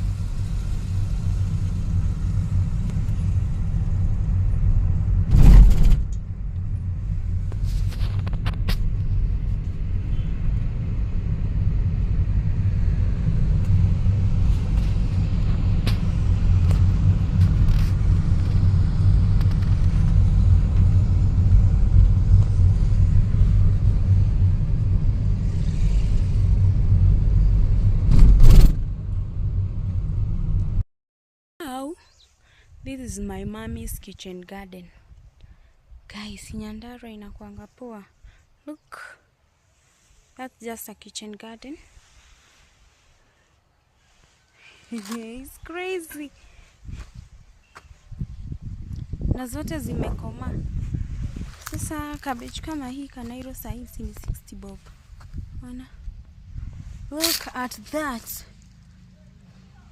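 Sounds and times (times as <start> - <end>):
car rumble from inside cabin: 0.0 - 30.8
loud thumps: 1.8 - 30.0.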